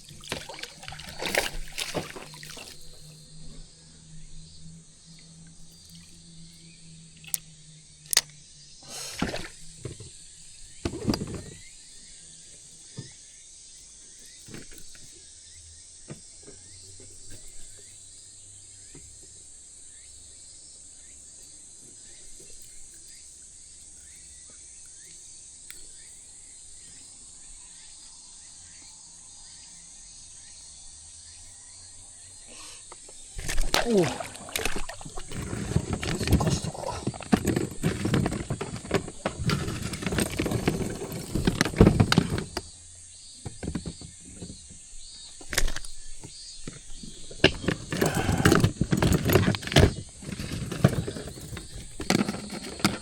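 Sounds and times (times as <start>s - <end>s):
sharp knocks and handling thumps: 0.0s - 3.1s, 9.1s - 11.7s, 32.9s - 42.8s, 43.4s - 53.0s
insect chirring: 0.0s - 53.0s.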